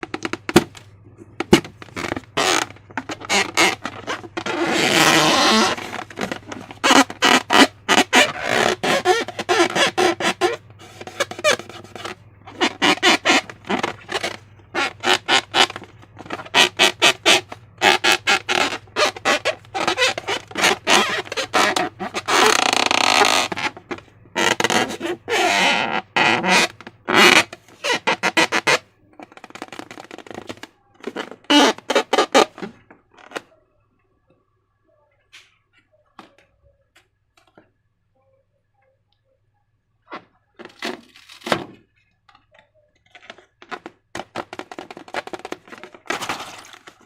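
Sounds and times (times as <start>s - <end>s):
wet squelches and squeaks: 1.8s - 32.5s.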